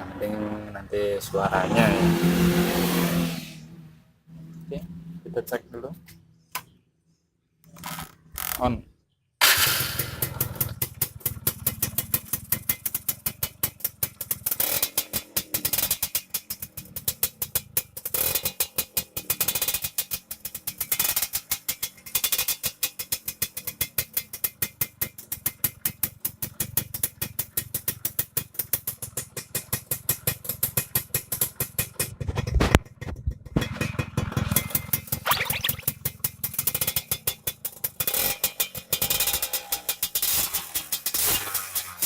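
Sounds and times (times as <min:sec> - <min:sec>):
motorcycle exhaust popping: 0:10.0 - 0:42.0.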